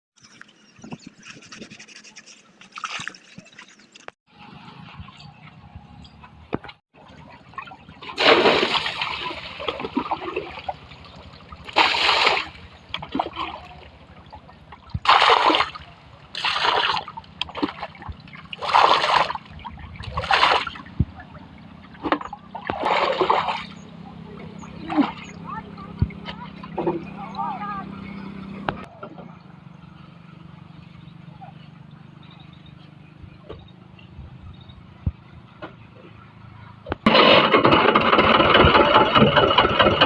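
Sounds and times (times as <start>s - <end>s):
water splashing onto tractor: 2.6s - 4.2s, 7.0s - 27.5s, 37.0s - 40.0s.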